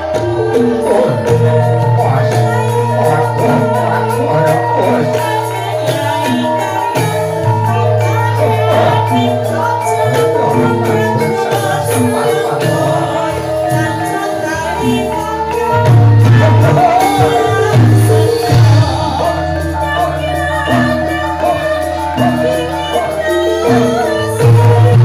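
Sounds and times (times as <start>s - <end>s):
gamelan music: 0.0s - 25.0s
person singing: 0.0s - 25.0s.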